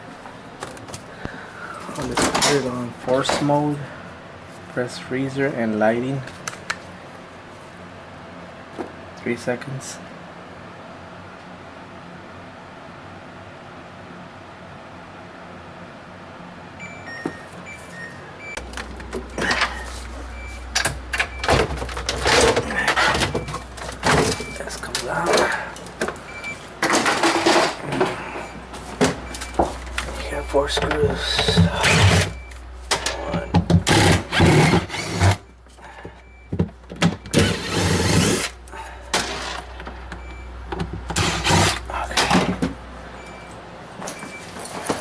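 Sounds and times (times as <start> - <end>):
cordless drill running in bursts: 33.9 - 35.4, 37.4 - 38.5.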